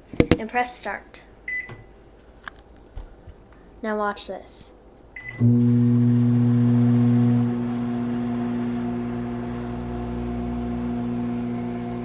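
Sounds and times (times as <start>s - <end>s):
microwave oven humming: 5.4s - 12.0s.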